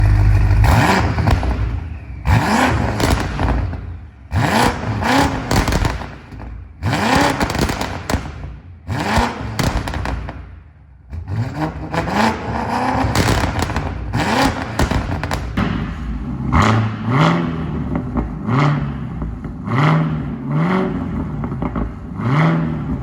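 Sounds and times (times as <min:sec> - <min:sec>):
exhaust crackling pops: 0:00.0 - 0:04.0, 0:04.6 - 0:10.6, 0:12.9 - 0:17.1
engine revving: 0:00.0 - 0:10.3, 0:11.1 - 0:23.0.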